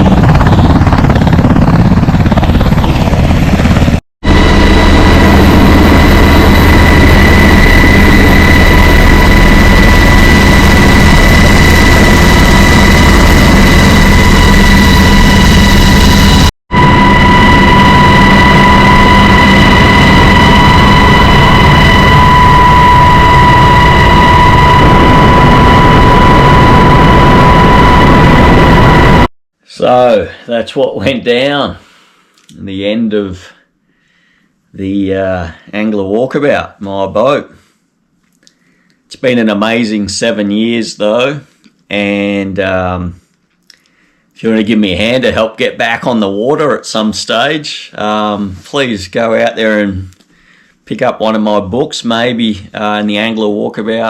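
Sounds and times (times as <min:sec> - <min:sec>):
helicopter running: 0:00.0 - 0:29.3
high whine: 0:00.0 - 0:30.3.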